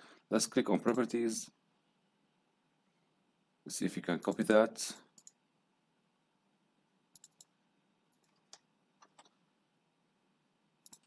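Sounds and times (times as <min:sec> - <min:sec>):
faint computer mouse clicks: 0:05.2 - 0:05.4, 0:07.1 - 0:07.5.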